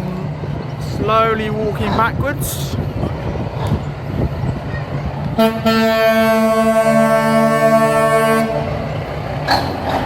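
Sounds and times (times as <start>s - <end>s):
truck air horn blast: 5.4s - 8.9s.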